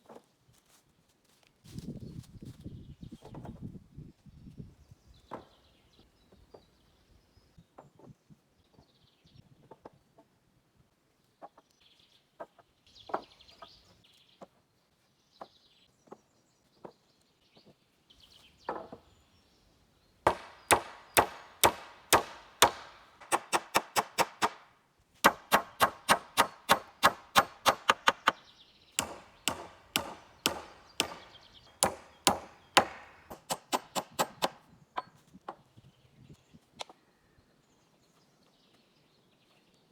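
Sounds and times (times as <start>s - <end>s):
tool striking wood: 20.3s - 28.4s, 29.0s - 34.6s.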